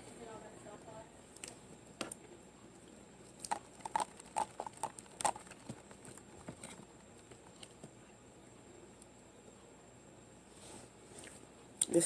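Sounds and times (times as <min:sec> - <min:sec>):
chewing and lip-smacking: 0:03.4 - 0:07.8.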